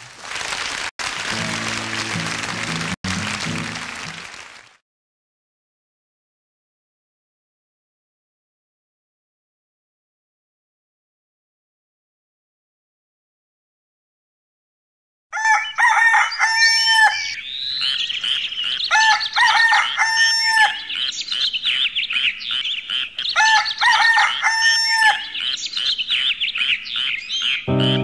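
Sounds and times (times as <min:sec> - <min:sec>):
small birds twittering: 0:17.2 - 0:19.4, 0:20.8 - 0:23.9, 0:25.2 - 0:28.0
bird call of pitched notes: 0:27.0 - 0:28.0.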